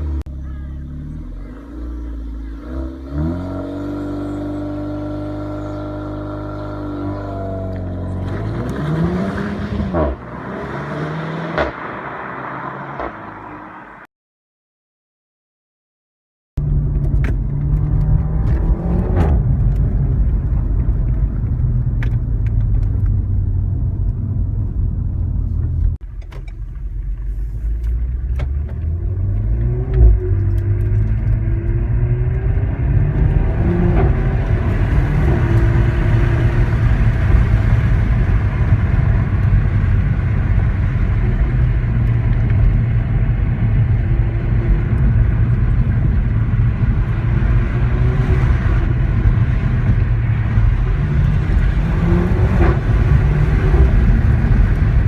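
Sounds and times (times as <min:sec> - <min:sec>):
car engine running: 0:00.0 - 0:10.6, 0:16.6 - 0:55.0.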